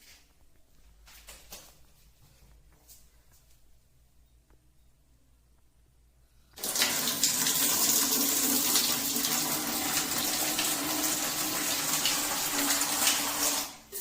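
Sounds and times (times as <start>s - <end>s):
faint low hum: 0.1s - 6.6s
water running from outlet: 6.6s - 14.0s.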